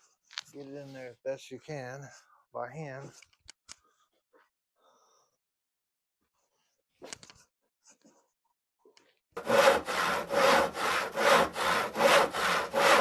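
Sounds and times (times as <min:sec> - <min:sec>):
rhythmic back-and-forth scraping: 0:09.4 - 0:13.0.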